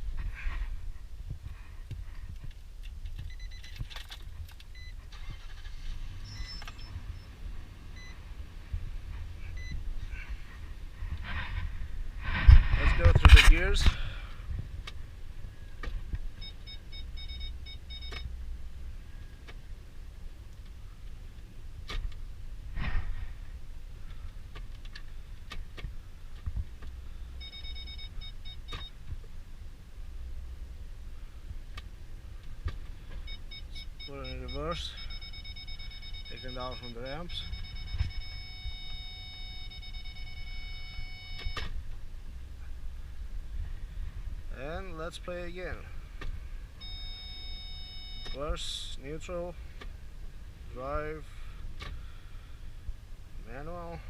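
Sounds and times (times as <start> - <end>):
engine rumbling: 0.0 - 54.0
clicks and rattling: 2.4 - 4.7
warning chime beeping: 33.3 - 41.6.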